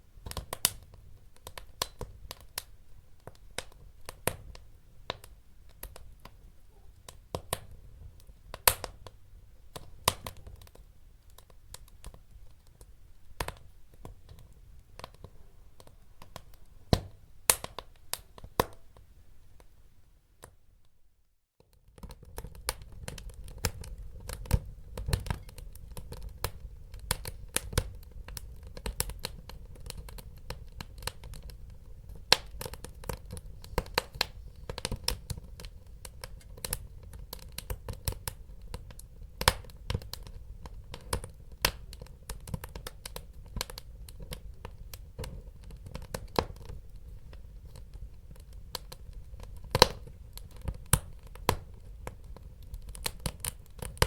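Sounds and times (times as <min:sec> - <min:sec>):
fire popping and snapping: 0:00.2 - 0:19.7, 0:21.6 - 0:54.0
wood fire rumbling: 0:21.9 - 0:54.0.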